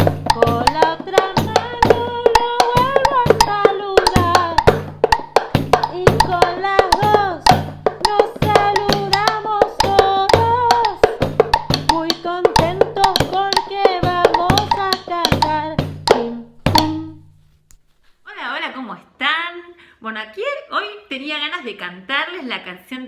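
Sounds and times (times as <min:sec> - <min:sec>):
woman singing: 0:00.0 - 0:04.9, 0:05.7 - 0:17.2
plucked strings: 0:00.0 - 0:17.3
sharp percussive strikes: 0:00.0 - 0:17.3.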